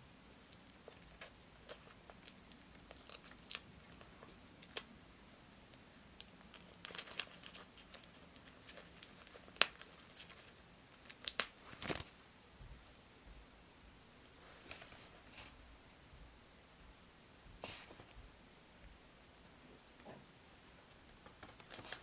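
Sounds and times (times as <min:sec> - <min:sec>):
paper crinkling: 0:06.4 - 0:12.2, 0:21.4 - 0:22.0.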